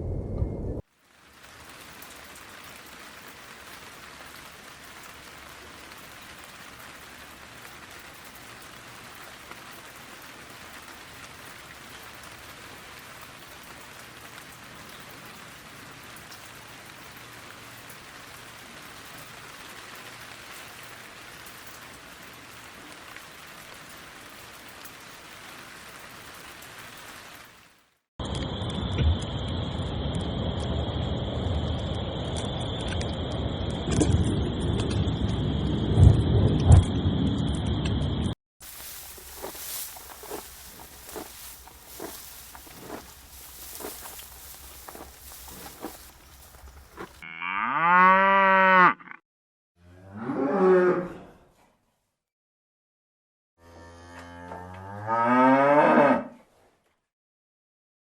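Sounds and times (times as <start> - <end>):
steady rain patter: 0.9 - 28.0, 38.6 - 47.2.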